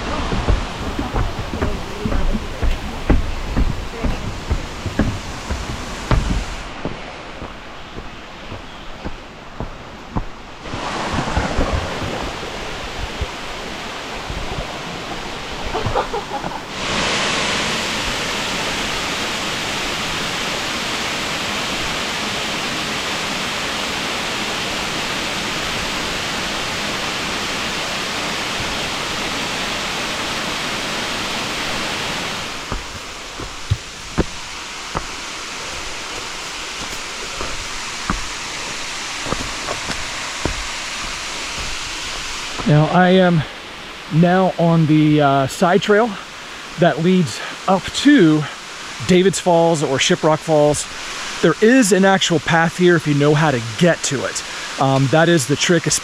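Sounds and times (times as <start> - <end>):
waterfall rushing: 0.0 - 56.0
light knocks: 0.3 - 10.3.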